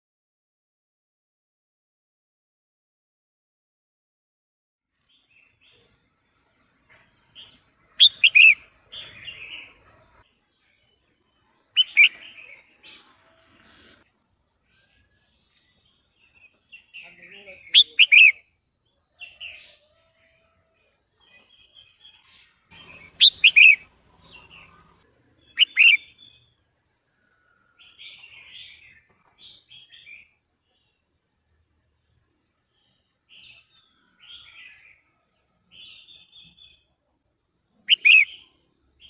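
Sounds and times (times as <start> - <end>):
bird chattering notes: 8.0 - 8.6, 11.8 - 12.4, 17.7 - 18.4, 22.7 - 23.8, 25.6 - 26.1, 37.9 - 38.3
bird sharp calls: 8.0 - 9.7, 11.8 - 14.0, 17.7 - 18.4, 22.7 - 24.9, 25.5 - 26.4, 37.9 - 38.5.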